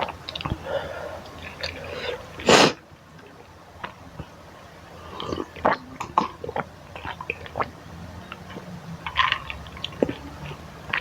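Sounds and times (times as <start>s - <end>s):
wet mouth sounds: 5.0s - 11.0s
chewing noodles: 8.3s - 11.0s.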